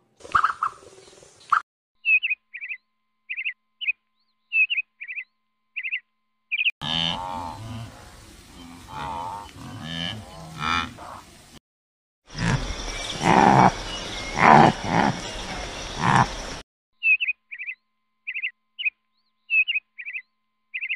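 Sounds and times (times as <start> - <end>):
bird chirping: 0.4 - 6.7, 12.4 - 20.9
animal calling: 12.3 - 16.6.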